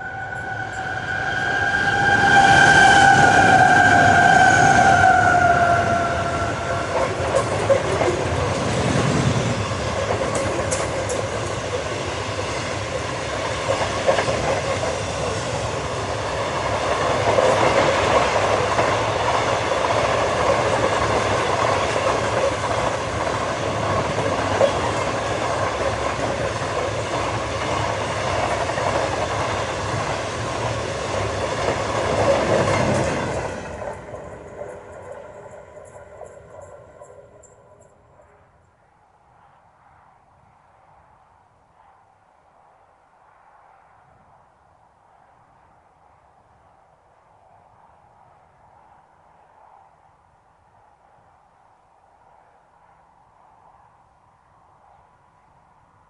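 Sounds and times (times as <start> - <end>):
high tone: 0.0 - 7.4
train wheels rumbling on rail: 0.0 - 38.4.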